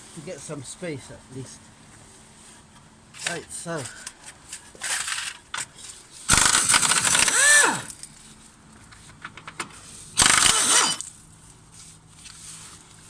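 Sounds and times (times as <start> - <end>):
power wrench rattling whine: 4.7 - 8.2, 9.4 - 11.3.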